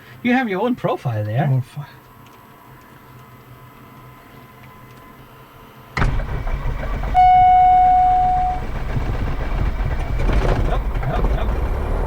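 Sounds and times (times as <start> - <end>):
loud low rumble: 6.0 - 12.0
horn-like warning tone: 7.2 - 8.8.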